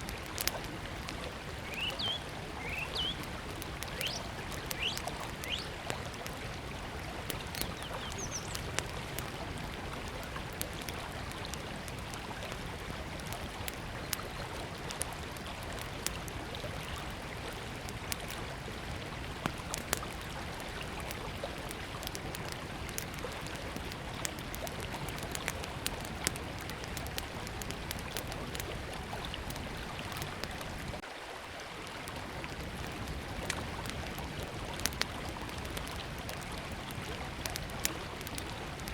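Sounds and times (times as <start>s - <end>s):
river water rushing: 0.0s - 12.0s
wood fire crackling and popping: 0.0s - 31.0s, 32.1s - 38.9s
bird chirp: 1.6s - 3.2s, 3.9s - 5.7s, 7.5s - 8.6s.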